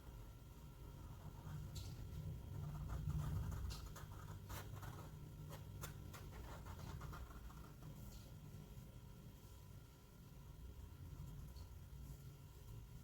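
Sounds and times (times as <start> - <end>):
drawing tool scratching on paper: 2.5 - 8.0.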